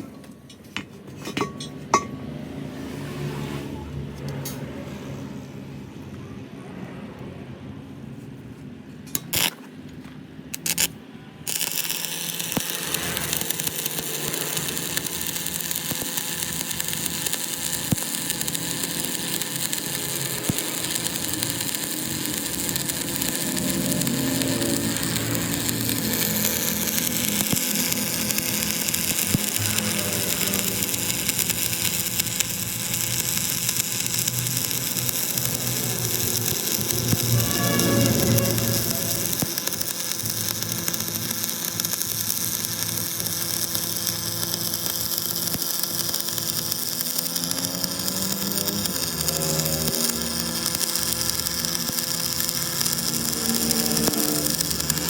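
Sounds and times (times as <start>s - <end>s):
power tool running: 10.6s - 55.0s.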